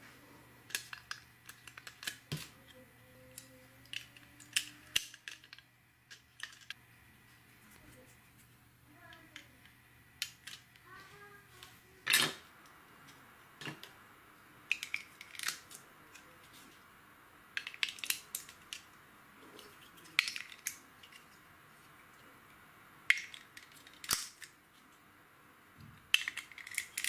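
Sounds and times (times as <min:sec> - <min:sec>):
plastic bricks clicking together: 0:00.7 - 0:02.5, 0:03.3 - 0:06.8, 0:14.7 - 0:15.8, 0:17.6 - 0:18.9, 0:19.6 - 0:21.3, 0:23.1 - 0:24.5, 0:26.1 - 0:27.0.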